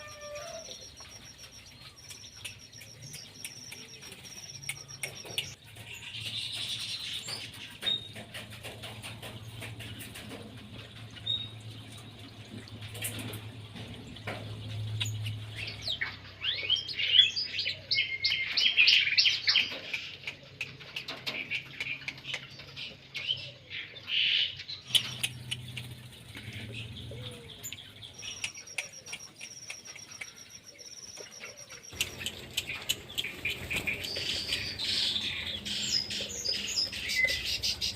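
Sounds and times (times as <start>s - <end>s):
fast high bird trill: 0.0s - 5.6s
songbirds chirping and calling: 0.0s - 37.9s.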